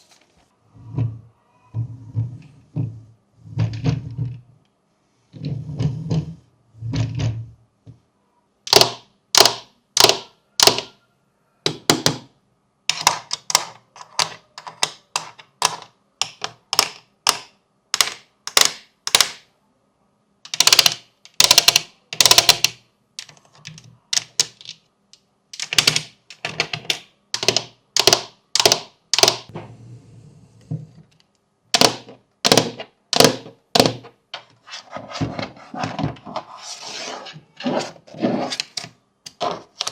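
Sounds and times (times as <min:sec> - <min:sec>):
fidget toys clicking: 0:20.5 - 0:24.8, 0:27.4 - 0:29.5.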